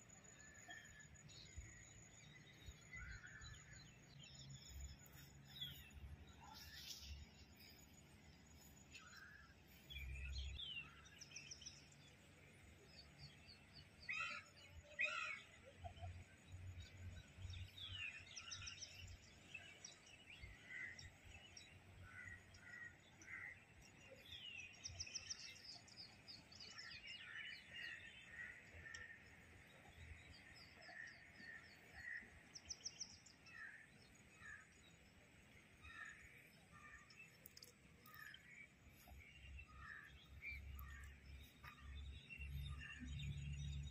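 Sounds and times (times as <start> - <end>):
small birds chirping and twittering: 0.0 - 43.9.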